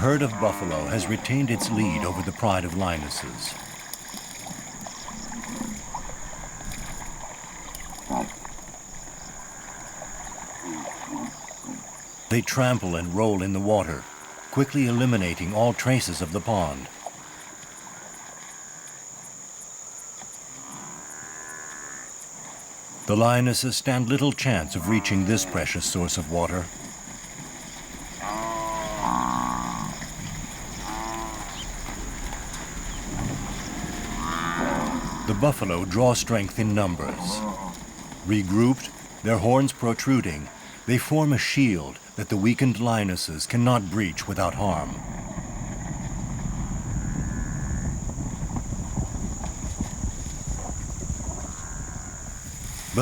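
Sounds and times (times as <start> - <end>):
buffalo low calls: 0.0 - 3.6, 4.8 - 16.8, 24.2 - 26.7, 28.1 - 41.2
water sloshing and splashing: 0.0 - 19.4, 24.3 - 41.1, 42.0 - 47.0, 48.0 - 53.0.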